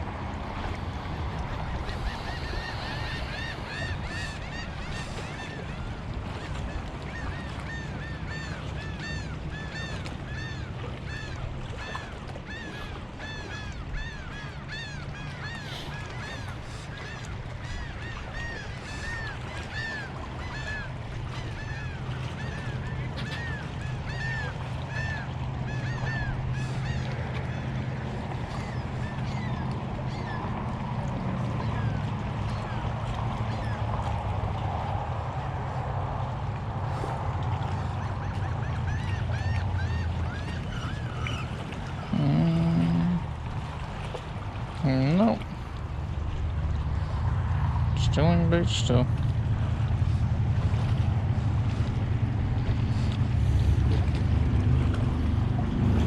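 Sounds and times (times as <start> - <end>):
bird calling: 1.6 - 30.8, 31.4 - 33.9, 37.6 - 46.2, 51.7 - 55.3
steady low rumble: 49.0 - 56.0.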